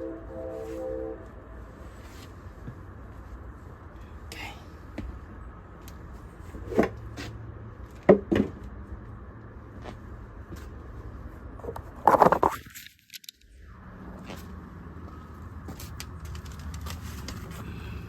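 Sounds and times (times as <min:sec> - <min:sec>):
low steady hum: 0:00.0 - 0:06.3.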